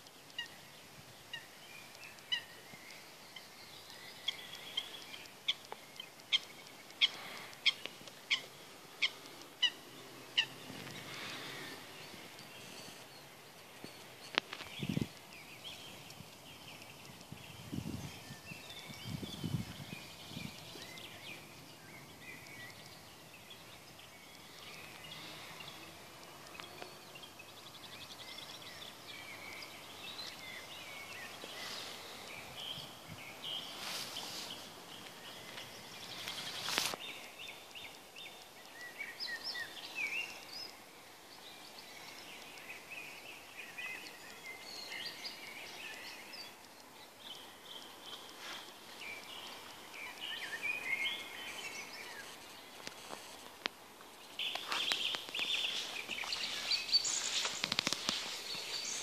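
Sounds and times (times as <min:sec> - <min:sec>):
songbirds chirping and singing: 0:00.0 - 0:59.0
sharp clicks: 0:57.4 - 0:58.7.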